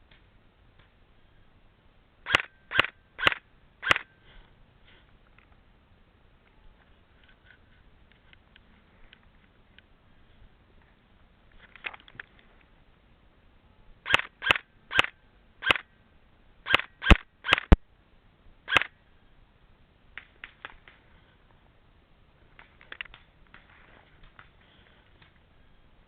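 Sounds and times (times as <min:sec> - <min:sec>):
airsoft gun shots: 0:02.3 - 0:04.1, 0:16.7 - 0:17.8, 0:18.7 - 0:18.9.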